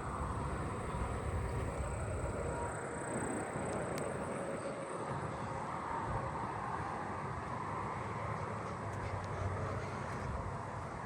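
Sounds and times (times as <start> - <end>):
faint insect drone: 0.0 - 6.8.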